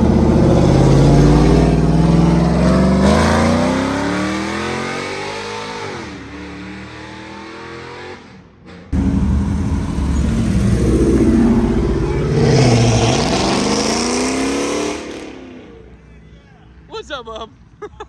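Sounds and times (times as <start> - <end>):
loud engine close by: 0.0 - 6.0, 9.0 - 15.8
car accelerating hard: 0.0 - 8.2, 9.0 - 15.8.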